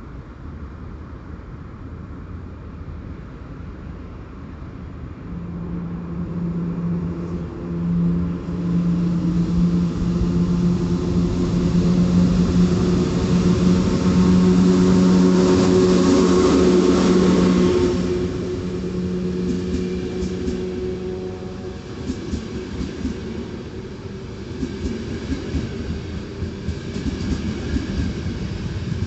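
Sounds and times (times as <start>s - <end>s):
train hum: 0.0s - 29.0s
wheels rushing on rails: 2.6s - 29.0s
low rumble: 4.7s - 24.2s.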